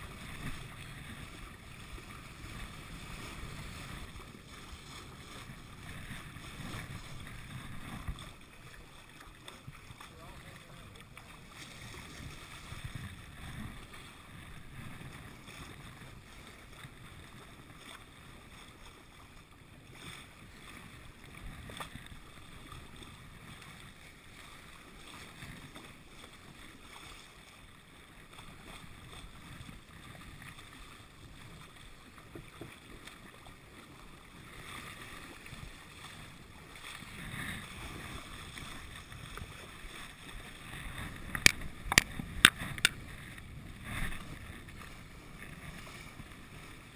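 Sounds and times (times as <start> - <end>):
wind on microphone: 0.0 - 8.7, 11.5 - 17.5, 34.7 - 46.9
water washing along hull: 0.0 - 46.9.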